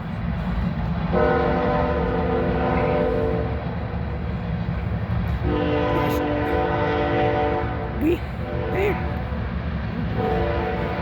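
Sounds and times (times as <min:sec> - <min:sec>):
passing train rumble: 0:00.0 - 0:11.0
train horn blasts: 0:01.1 - 0:03.7, 0:05.4 - 0:09.4, 0:10.1 - 0:11.0.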